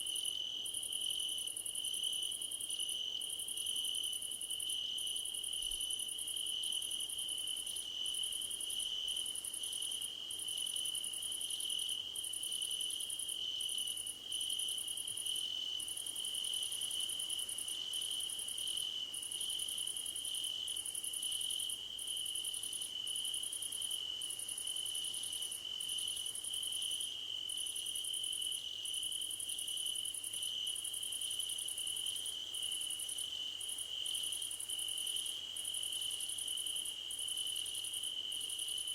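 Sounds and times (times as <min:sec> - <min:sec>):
crickets steady trill: 0:00.0 - 0:38.9.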